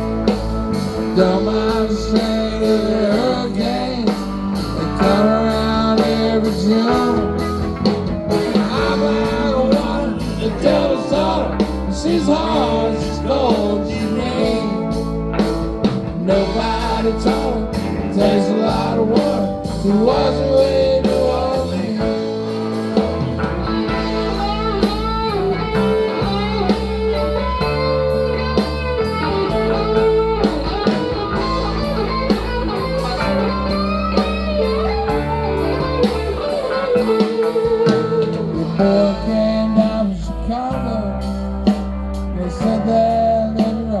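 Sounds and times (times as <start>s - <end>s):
steady drum beat: 0.0s - 39.1s
bass guitar: 0.0s - 44.0s
electric guitar lead with bends: 0.0s - 44.0s.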